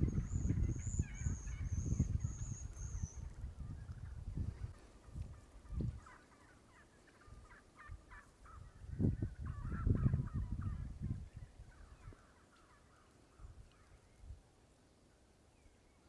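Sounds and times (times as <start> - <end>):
birds chattering: 0.0 - 4.0.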